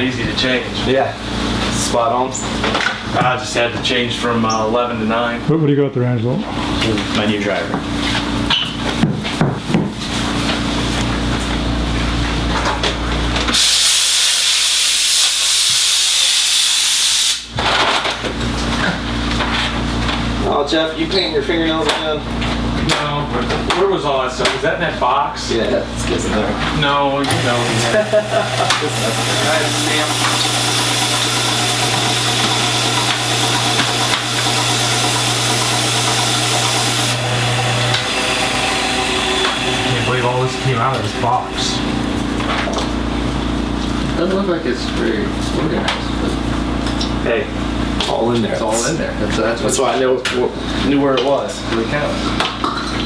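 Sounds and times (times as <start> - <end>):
machine motor humming: 27.3 - 42.4.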